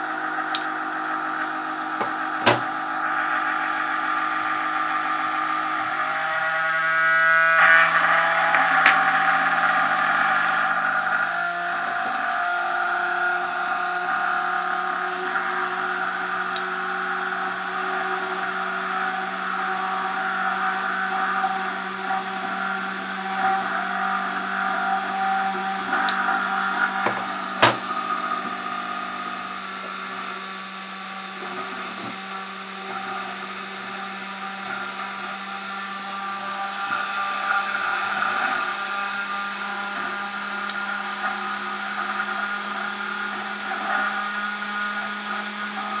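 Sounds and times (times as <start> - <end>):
rotor spinning with steady whine: 0.0 - 46.0.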